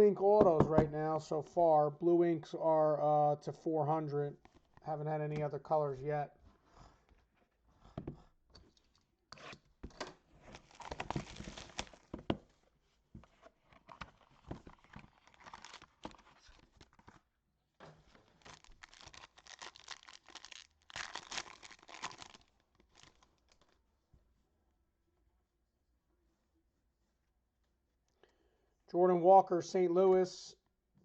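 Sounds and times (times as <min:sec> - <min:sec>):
packaging crinkling: 0:10.4 - 0:12.2, 0:13.9 - 0:17.0, 0:18.1 - 0:23.8
cardboard packaging tearing: 0:10.5 - 0:12.1, 0:14.8 - 0:16.6, 0:18.2 - 0:23.6.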